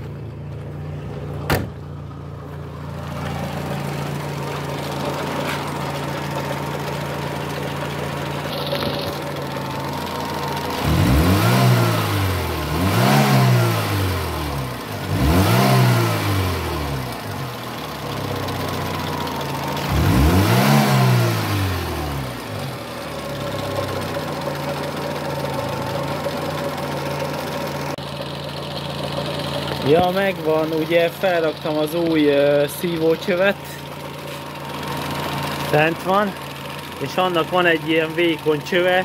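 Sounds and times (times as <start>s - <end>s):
car engine revving: 0.0s - 28.0s
car engine idling: 0.0s - 39.0s.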